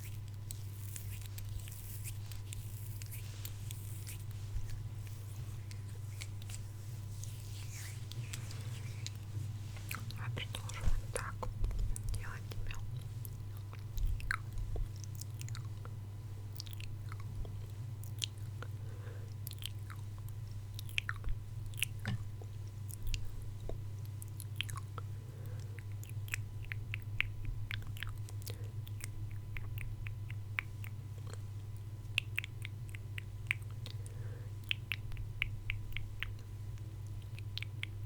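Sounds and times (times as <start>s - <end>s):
low electrical hum: 0.0s - 38.0s
wet mouth clicks and smacks: 25.7s - 38.0s.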